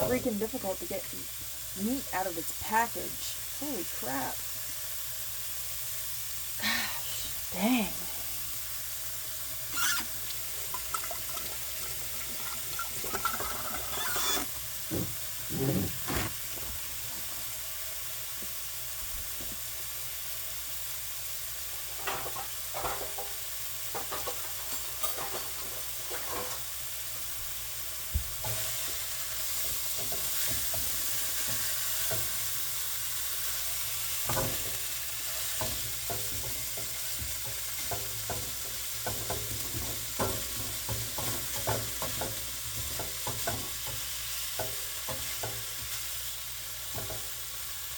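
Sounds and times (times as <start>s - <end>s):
food sizzling in a frying pan: 0.0s - 47.9s
utensils clattering: 9.7s - 14.5s, 24.0s - 26.6s.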